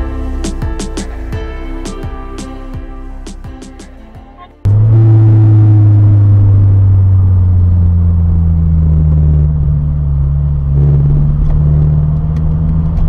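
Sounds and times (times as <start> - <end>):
car engine and road rumble: 4.3 - 13.0.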